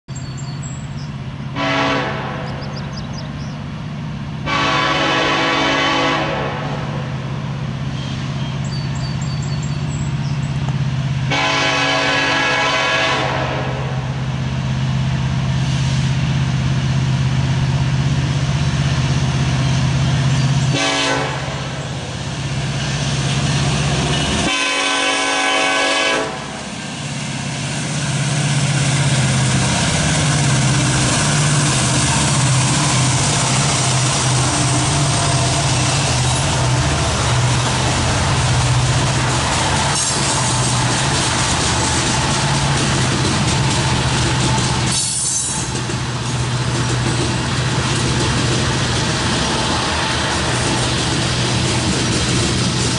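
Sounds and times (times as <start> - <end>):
locomotive engines droning: 0.1 - 52.9
train air horn blasts: 1.5 - 2.7, 4.4 - 7.1, 11.2 - 14.2, 20.7 - 22.0, 24.4 - 26.6
train wheel clatter: 28.5 - 52.9.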